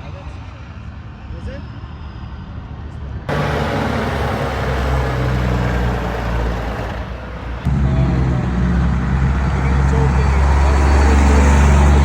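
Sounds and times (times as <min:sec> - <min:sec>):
heavy truck diesel engines: 0:03.3 - 0:12.0
traffic noise: 0:03.3 - 0:12.0.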